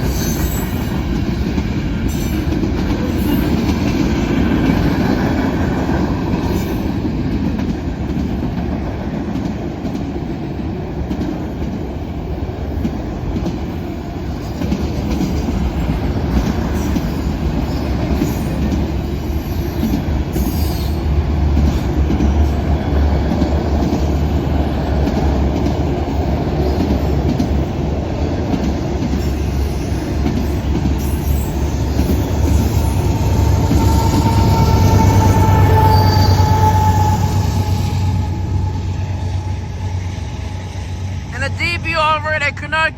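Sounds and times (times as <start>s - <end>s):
freight train wheels rumbling on rail: 0.0s - 41.5s
high wheel squeal: 31.1s - 39.6s.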